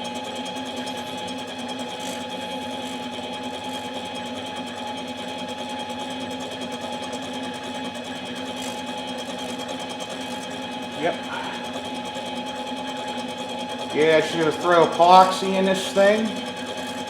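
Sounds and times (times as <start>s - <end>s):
metal lathe motor humming: 0.0s - 17.0s.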